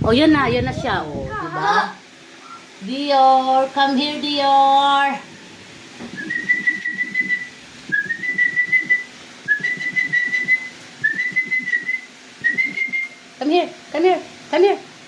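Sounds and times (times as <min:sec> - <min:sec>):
whistled notes: 0:06.1 - 0:13.2.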